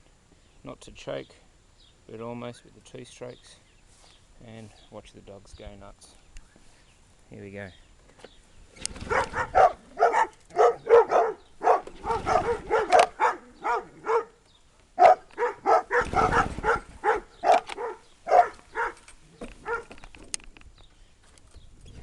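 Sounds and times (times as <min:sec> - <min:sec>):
dogs barking excitedly: 0:09.0 - 0:14.4, 0:15.0 - 0:20.0.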